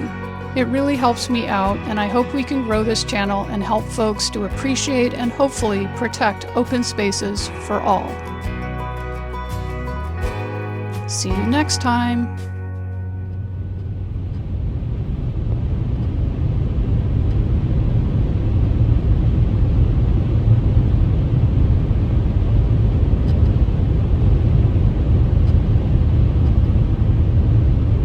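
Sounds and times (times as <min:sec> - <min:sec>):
vehicle road and engine rumble: 0:11.1 - 0:28.0.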